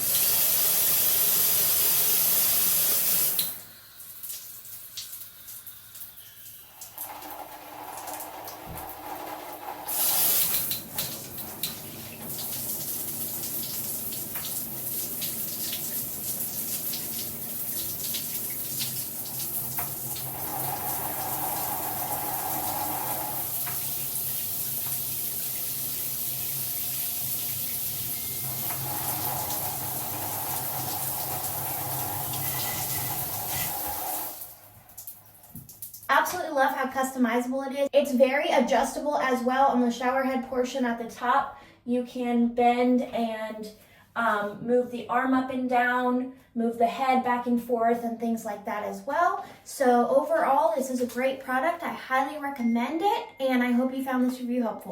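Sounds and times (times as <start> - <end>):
water spraying from shower head: 5.0 - 35.2.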